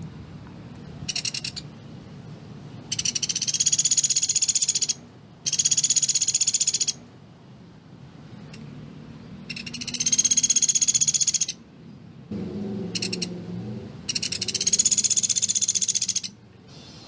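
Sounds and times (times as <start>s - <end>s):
woodpecker trilling: 1.1s - 1.7s, 2.9s - 7.0s, 9.5s - 11.6s, 12.9s - 13.3s, 14.1s - 16.4s.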